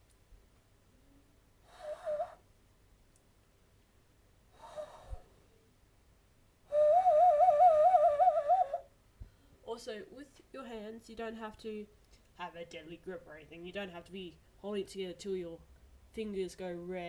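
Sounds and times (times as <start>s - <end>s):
hand whistle hooting: 1.7s - 2.4s, 6.7s - 8.9s
breathy puff: 4.6s - 5.4s.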